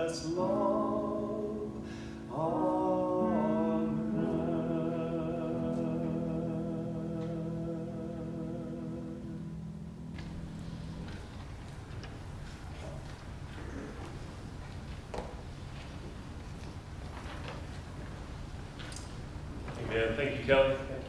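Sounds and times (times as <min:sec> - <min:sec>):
person singing with vibrato: 0:00.0 - 0:09.7.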